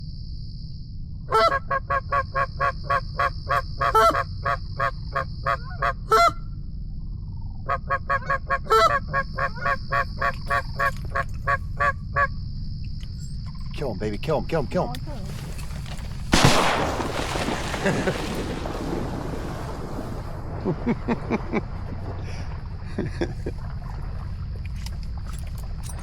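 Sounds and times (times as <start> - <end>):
goose honking: 1.3 - 6.4, 7.7 - 12.3
low rumble: 6.3 - 7.7, 14.4 - 26.0.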